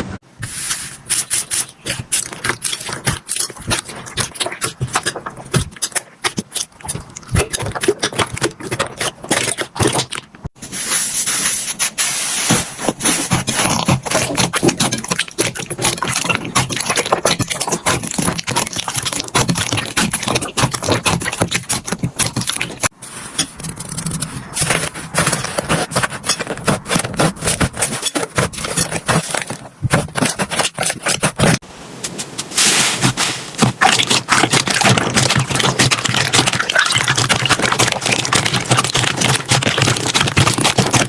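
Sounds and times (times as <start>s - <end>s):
slime crackling and popping: 32.6s - 41.0s.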